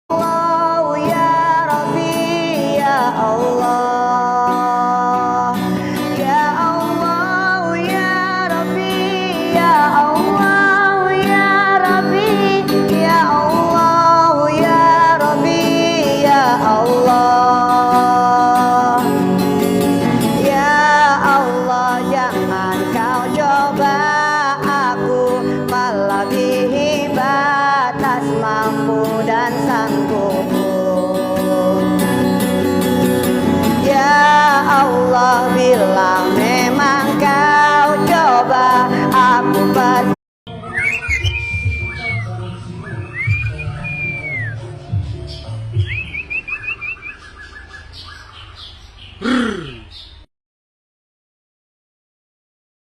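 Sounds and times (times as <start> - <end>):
person singing long notes: 0.1 - 19.4, 20.2 - 40.2
guitar accompaniment: 0.1 - 47.2.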